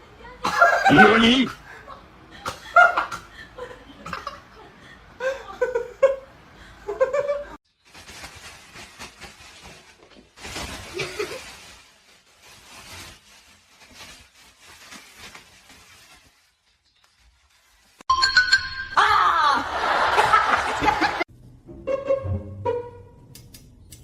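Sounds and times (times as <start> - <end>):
person laughing: 0.5 - 6.2.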